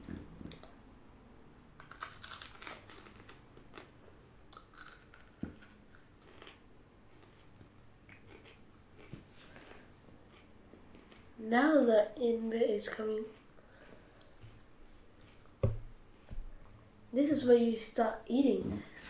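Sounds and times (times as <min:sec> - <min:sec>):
chewing and crunching raw vegetable: 0:01.8 - 0:11.4.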